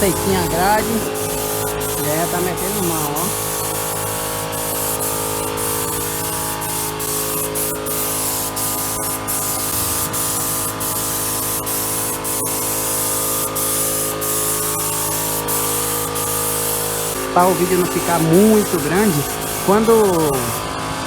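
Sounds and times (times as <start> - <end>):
steady hum: 0.0 - 3.2
paint spraying hiss: 0.0 - 20.7.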